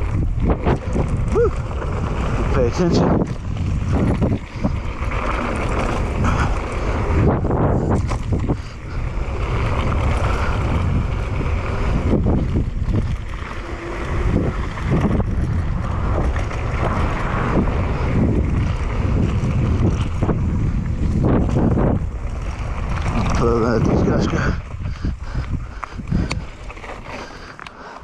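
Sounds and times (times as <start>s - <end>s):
wind buffeting microphone: 0.0s - 27.6s
tyres rumbling on dirt trail: 0.0s - 28.0s
bike knocks and rattles: 7.2s - 11.0s.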